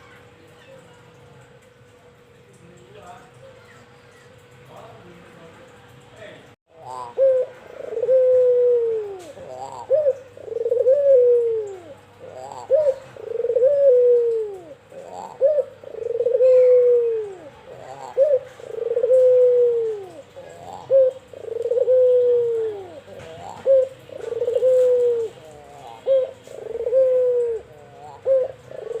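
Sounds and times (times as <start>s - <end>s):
dove cooing: 6.7s - 29.0s.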